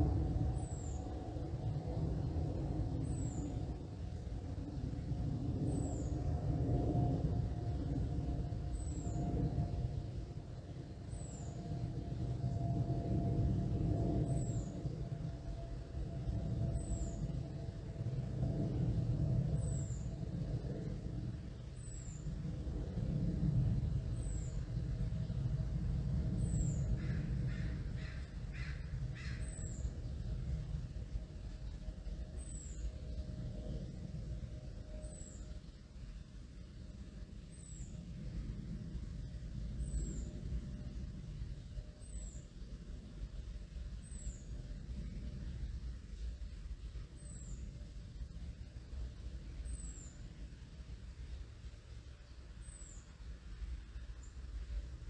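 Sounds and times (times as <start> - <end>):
passing plane rumble: 0.0 - 55.0
crow cawing: 27.0 - 29.4.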